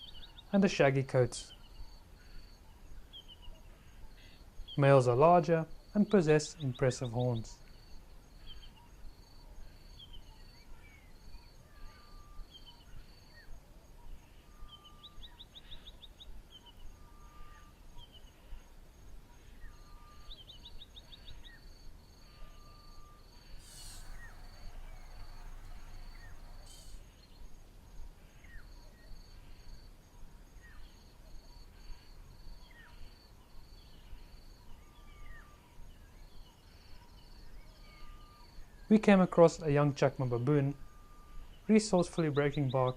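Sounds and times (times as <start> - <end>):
birds chirping and trilling: 6.1 - 18.6, 22.4 - 29.3
high insect buzz: 21.8 - 28.5
low whistled bird note: 22.7 - 27.6
brief rush of noise: 23.6 - 27.2.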